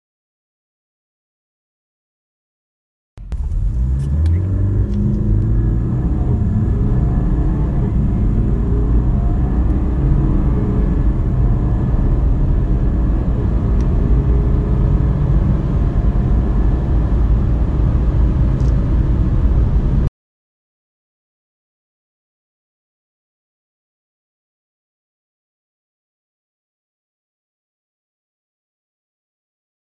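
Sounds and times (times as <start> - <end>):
car engine accelerating hard: 3.2 - 20.1
road and wind noise: 3.2 - 20.1.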